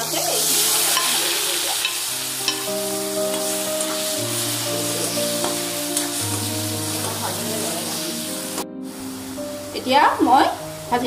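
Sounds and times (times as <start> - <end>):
paste sizzling in hot oil: 0.0 - 9.7
slow background music: 0.0 - 11.0
metal spatula stirring: 0.1 - 7.2.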